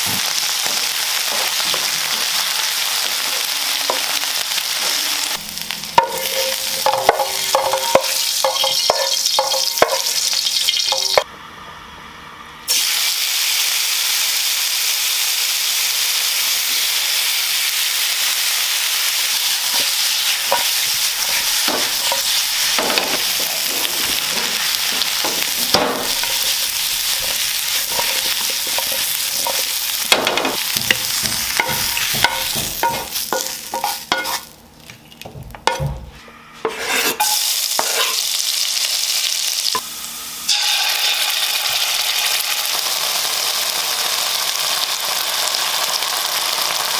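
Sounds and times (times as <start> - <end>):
food sizzling in hot oil: 0.0 - 11.3, 12.7 - 34.6, 36.7 - 46.9
utensil scraping pan: 6.0 - 11.2, 19.7 - 34.6, 36.6 - 38.2.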